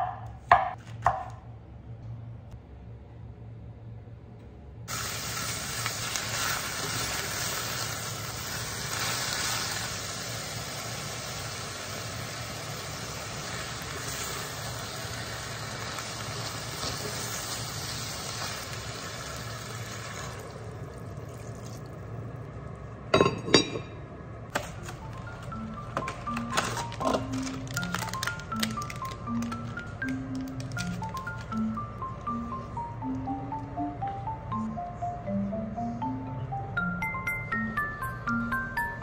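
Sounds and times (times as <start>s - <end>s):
food sizzling in a pot: 4.9s - 20.6s.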